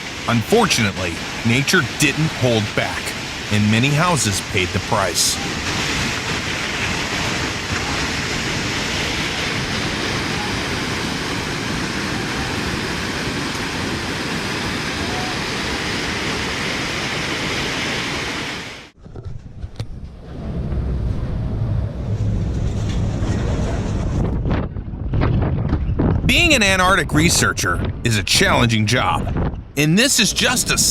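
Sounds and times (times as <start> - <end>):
floodwater rushing: 0.0 - 19.0, 26.3 - 30.9
wind buffeting microphone: 19.1 - 29.8.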